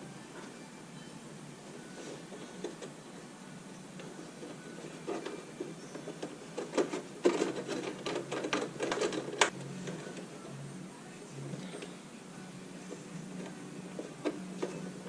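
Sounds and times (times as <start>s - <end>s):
small clicks and rattles: 4.0s - 10.5s.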